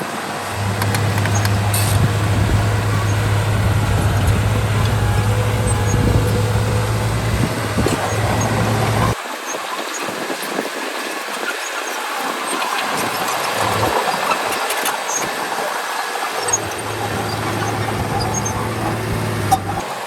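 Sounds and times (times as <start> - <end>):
diesel machine engine running: 0.0 - 9.2, 16.3 - 20.0.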